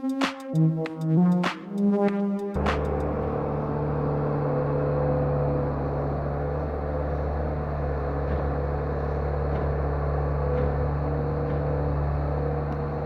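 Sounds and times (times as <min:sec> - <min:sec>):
loader engine running: 0:02.6 - 0:13.0.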